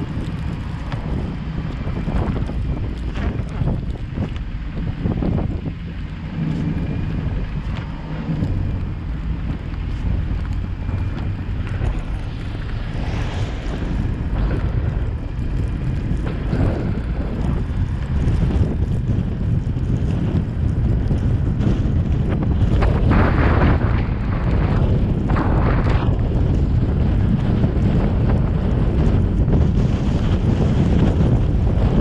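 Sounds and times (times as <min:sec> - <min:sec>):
car engine and tyres rumbling: 0:00.0 - 0:32.0
wind noise: 0:00.0 - 0:32.0.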